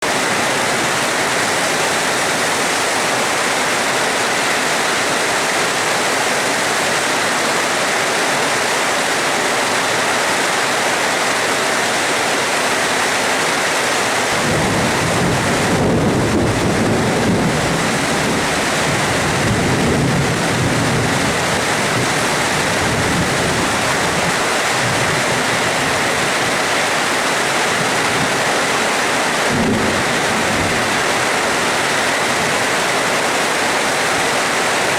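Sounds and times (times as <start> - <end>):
heavy rain falling: 0.0 - 34.9
thunder rumbling: 14.3 - 26.8, 27.7 - 32.6.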